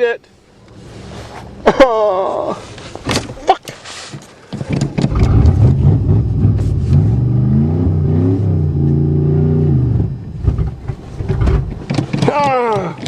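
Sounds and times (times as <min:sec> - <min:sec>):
car engine revving: 0:04.9 - 0:11.9.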